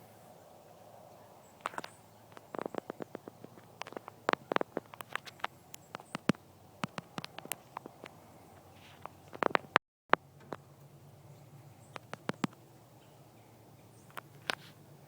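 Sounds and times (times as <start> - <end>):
sharp clicks and crackles: 1.5 - 10.9, 11.8 - 12.7, 14.0 - 14.8.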